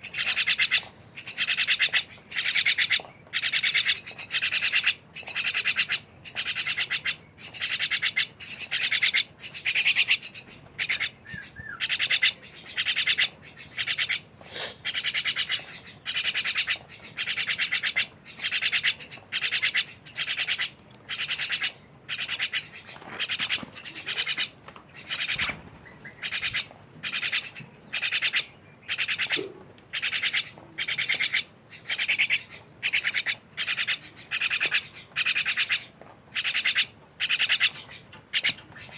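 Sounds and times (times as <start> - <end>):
myna chattering calls: 0.0 - 38.9.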